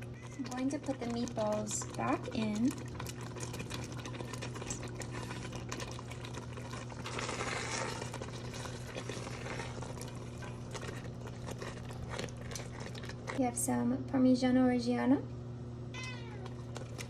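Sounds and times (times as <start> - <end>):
pasta sauce simmering: 0.0 - 13.4
steady low hum: 0.0 - 17.0.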